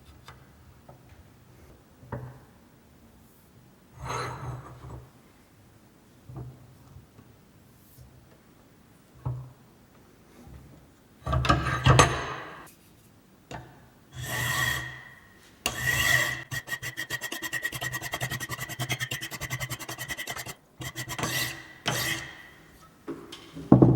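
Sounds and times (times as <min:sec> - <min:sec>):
file rasping on workpiece: 0:14.2 - 0:22.7.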